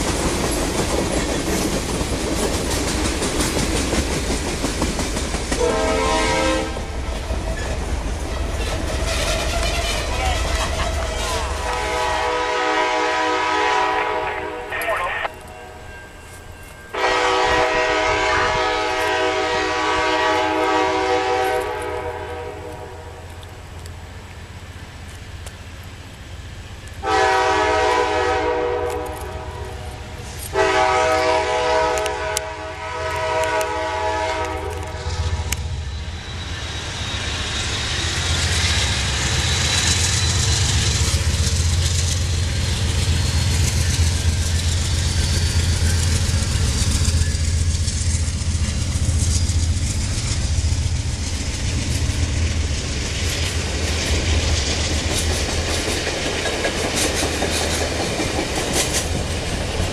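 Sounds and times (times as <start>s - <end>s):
train cars clickety-clack: 0.0s - 15.5s, 16.5s - 59.9s
diesel locomotive rumble: 0.0s - 15.9s, 16.9s - 59.9s
train horn blasts: 5.6s - 6.9s, 9.5s - 15.9s, 16.9s - 23.3s, 27.0s - 35.7s.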